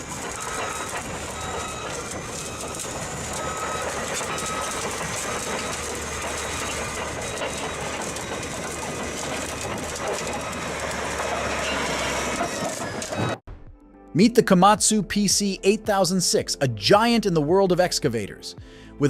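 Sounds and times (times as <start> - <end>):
bulldozer engine rumbling: 0.0 - 13.4
steel tracks clanking: 0.0 - 13.4.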